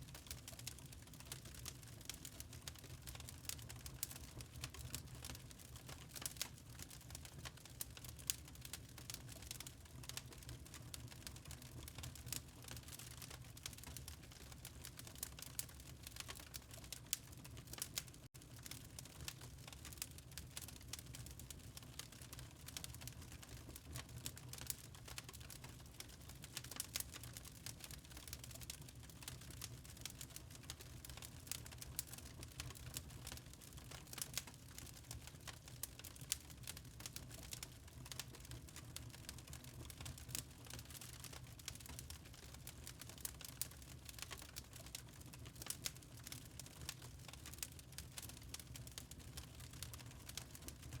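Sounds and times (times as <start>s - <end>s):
wood fire crackling: 0.0s - 51.0s
low fire rumble: 0.1s - 51.0s.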